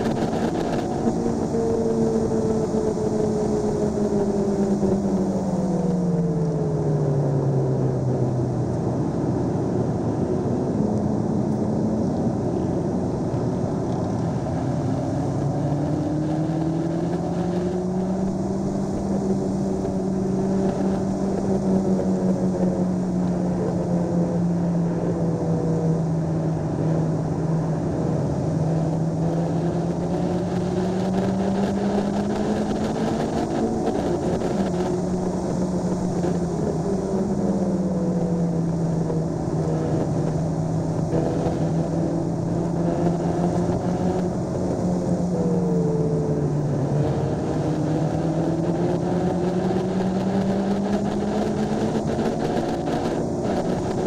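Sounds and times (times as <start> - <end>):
road and wind noise: 0.0 - 54.0
car engine revving: 12.5 - 54.0.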